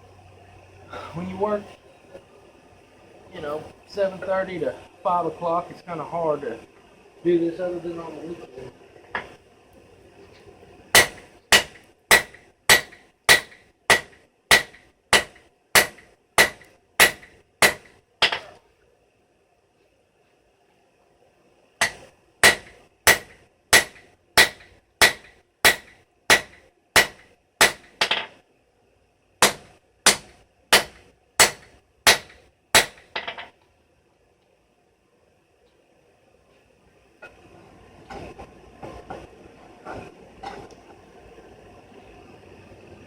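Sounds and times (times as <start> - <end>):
hammer striking steel on anvil: 11.0 - 18.5, 21.8 - 28.3, 29.4 - 33.5.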